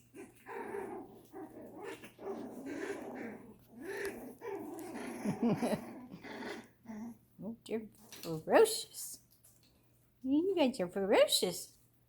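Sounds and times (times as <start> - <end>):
puppies growling and yipping: 0.0 - 7.3.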